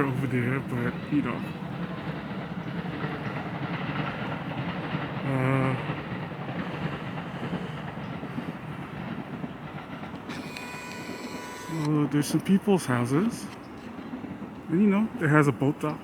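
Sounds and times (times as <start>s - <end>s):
train rumbling across bridge: 0.0s - 16.0s
brief wavering tone: 10.4s - 11.9s.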